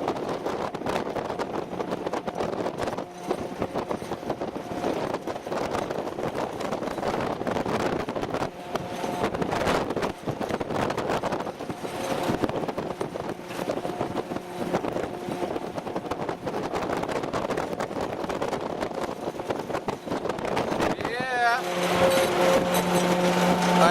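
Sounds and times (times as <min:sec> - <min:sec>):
vehicle engine and road noise: 0:00.0 - 0:23.9
short whining tones: 0:21.4 - 0:23.9.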